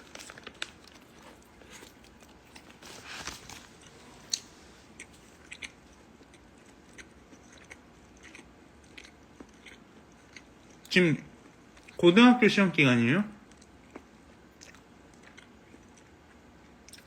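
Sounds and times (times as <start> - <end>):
person chewing crunchy food: 0.0 - 12.0, 13.4 - 17.0.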